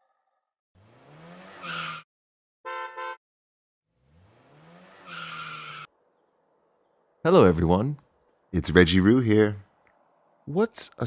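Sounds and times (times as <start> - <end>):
car engine revving: 0.8 - 2.0, 3.9 - 10.6
car horn beeps: 2.6 - 3.2
tyre screech: 4.9 - 5.9.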